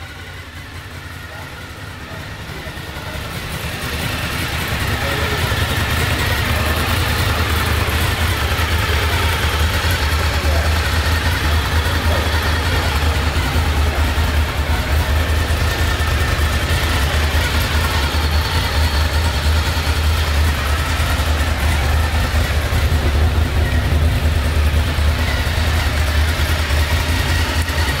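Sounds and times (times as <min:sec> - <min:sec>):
motorcycle engine idling: 0:00.0 - 0:28.0.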